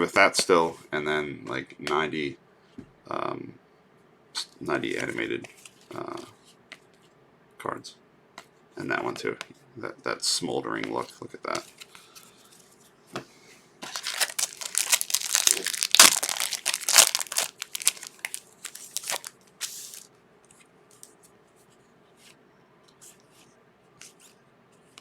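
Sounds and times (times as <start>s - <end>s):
wrapper tearing and crinkling: 13.8s - 20.1s.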